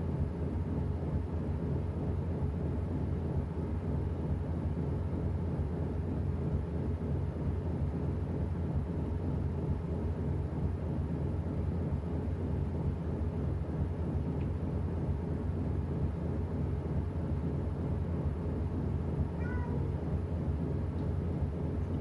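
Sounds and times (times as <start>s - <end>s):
washing machine rumble: 17.7s - 22.0s.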